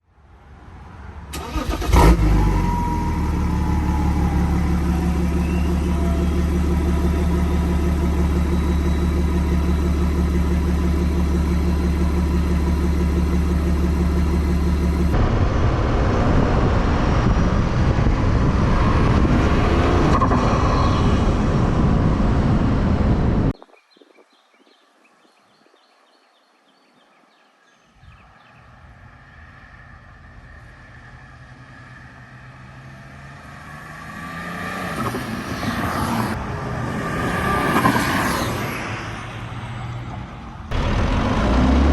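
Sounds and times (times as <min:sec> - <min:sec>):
diesel engine cranking and starting: 0:01.3 - 0:15.8, 0:37.4 - 0:41.9
diesel engine idling: 0:01.3 - 0:15.8, 0:39.2 - 0:41.9
loud rough engine: 0:01.4 - 0:23.6, 0:28.8 - 0:41.9.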